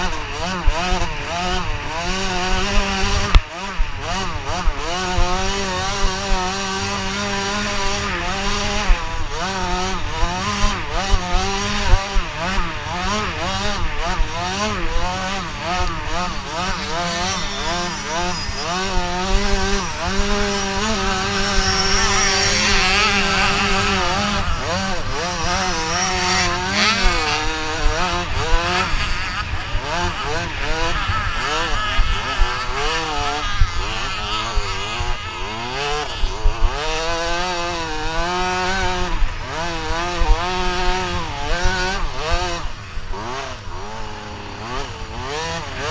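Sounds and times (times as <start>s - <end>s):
motocross bike engines revving: 0.0s - 45.9s
steady engine note: 11.4s - 32.4s.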